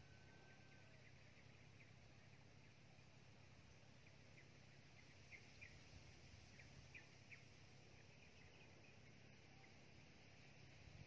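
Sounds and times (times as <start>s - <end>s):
faint high bird chirps: 0.0s - 2.8s, 3.6s - 10.0s
faint low hum: 0.0s - 11.0s.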